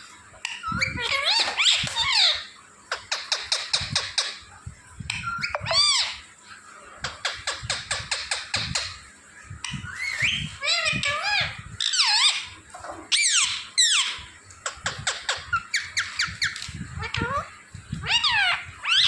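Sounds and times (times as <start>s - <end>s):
parrot whistling and chirping: 0.4s - 4.4s, 5.1s - 6.2s, 9.6s - 19.0s.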